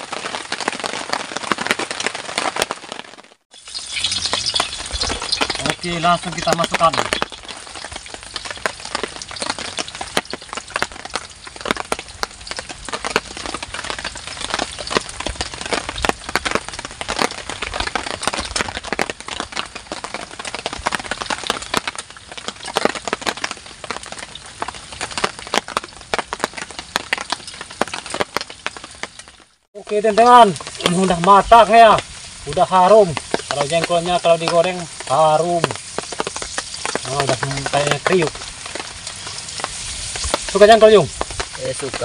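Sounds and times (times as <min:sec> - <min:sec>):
beans deep-frying in oil: 0:03.4 - 0:42.0.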